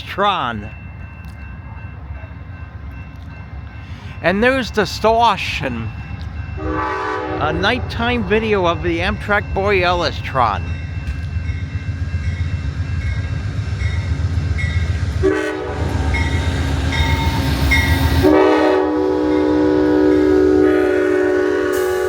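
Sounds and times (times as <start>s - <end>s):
locomotive rumble: 0.0s - 22.0s
train horn: 6.6s - 7.6s, 15.2s - 22.0s.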